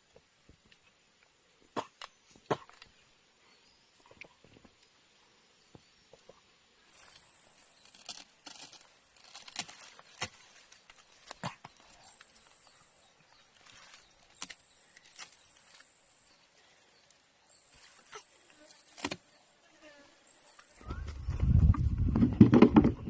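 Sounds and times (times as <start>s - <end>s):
insect buzzing: 6.9s - 10.0s, 17.4s - 21.0s
twigs cracking and snapping: 7.1s - 12.3s, 13.4s - 15.8s.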